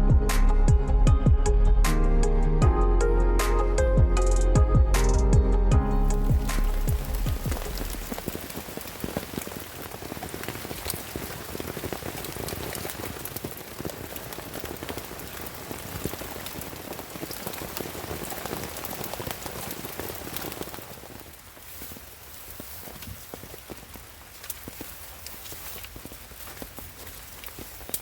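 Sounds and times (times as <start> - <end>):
rain drops ticking on surface: 5.9 - 28.0
rain hiss: 6.0 - 28.0.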